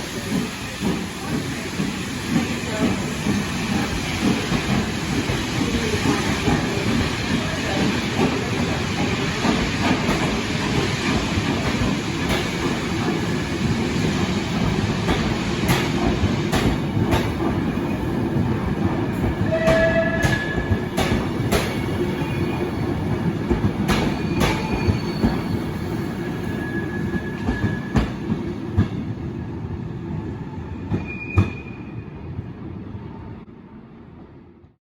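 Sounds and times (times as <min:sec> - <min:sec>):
wheel squeals: 0:23.9 - 0:28.1.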